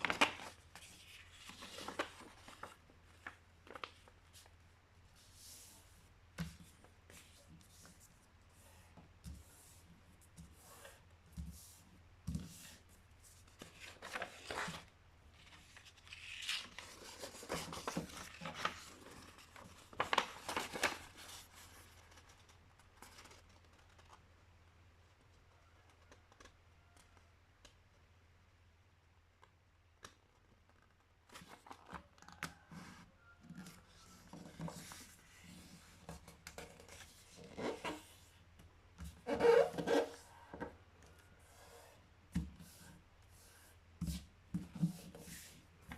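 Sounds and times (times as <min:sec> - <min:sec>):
paper folding and rustling: 0:00.0 - 0:04.6, 0:13.4 - 0:24.3, 0:30.5 - 0:32.6, 0:33.6 - 0:38.2.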